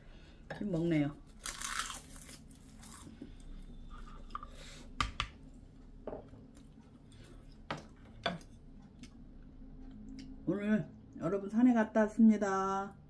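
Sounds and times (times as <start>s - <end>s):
soft chewing: 5.5s - 11.2s.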